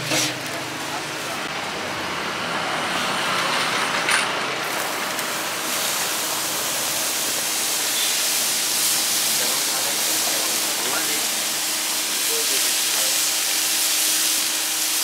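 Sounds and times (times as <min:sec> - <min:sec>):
food sizzling in a pan: 0:04.7 - 0:15.0.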